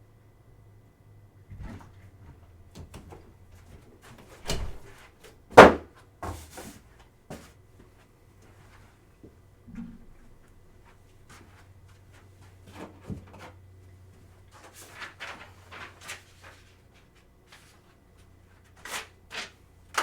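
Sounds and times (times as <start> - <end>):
door shutting thump: 4.4 - 4.9.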